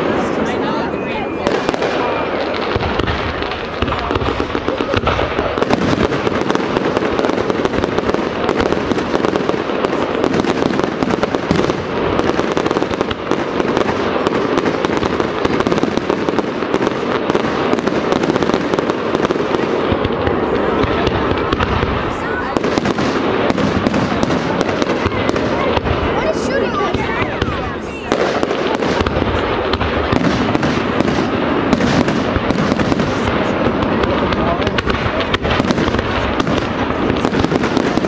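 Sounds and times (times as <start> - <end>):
fireworks popping and crackling: 0.0 - 38.0
heavy firework bangs: 0.0 - 38.0.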